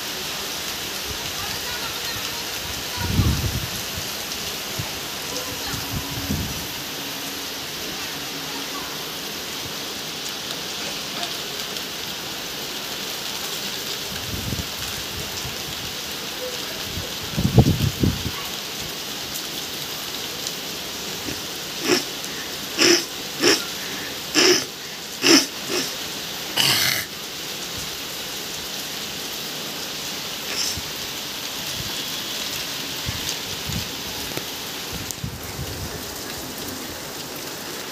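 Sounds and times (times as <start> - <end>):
heavy rain pouring: 0.0 - 37.9
short loud calls: 21.2 - 26.0.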